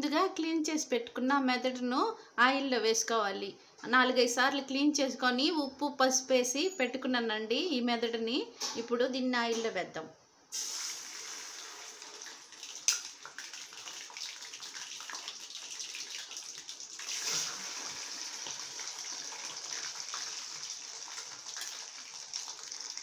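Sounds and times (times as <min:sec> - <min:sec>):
food sizzling in hot oil: 0:10.5 - 0:23.0.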